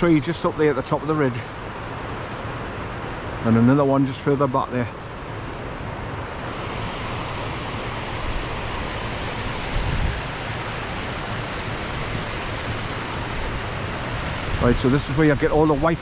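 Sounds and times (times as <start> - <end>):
waterfall rushing: 4.6 - 16.0.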